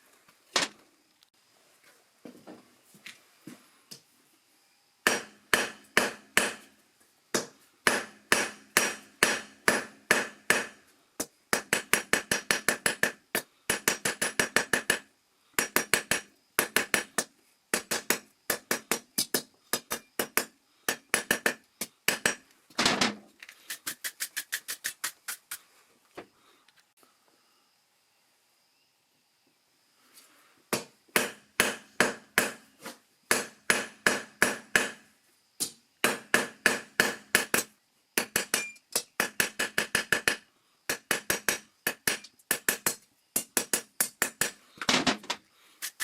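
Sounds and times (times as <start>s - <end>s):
hammer striking steel on anvil: 5.1s - 6.6s, 7.9s - 10.7s.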